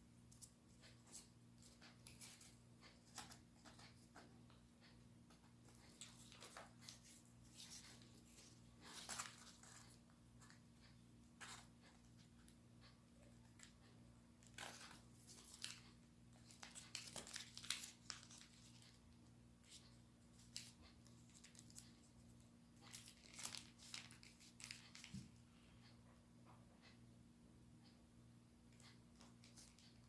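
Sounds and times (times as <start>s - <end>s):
paper folding rustles: 5.6s - 10.0s, 14.4s - 19.0s, 22.8s - 25.3s.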